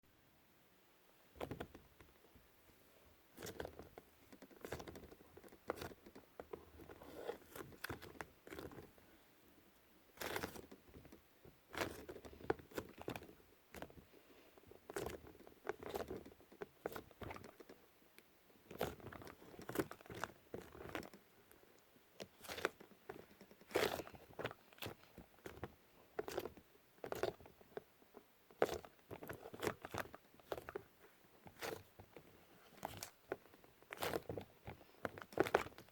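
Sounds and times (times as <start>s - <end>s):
clay squishing by hand: 1.2s - 35.9s.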